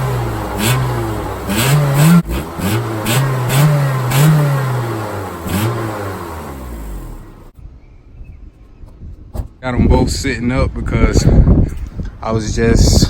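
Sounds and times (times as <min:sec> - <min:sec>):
car engine revving: 0:00.0 - 0:07.5.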